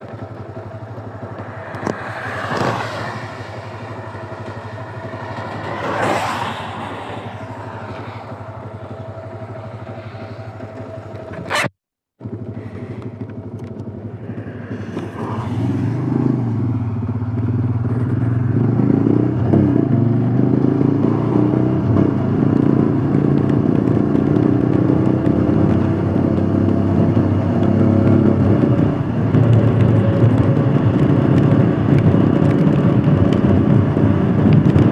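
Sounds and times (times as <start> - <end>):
passing noise: 0.0 - 11.7, 12.7 - 20.0
motorcycle engine running: 0.0 - 34.9.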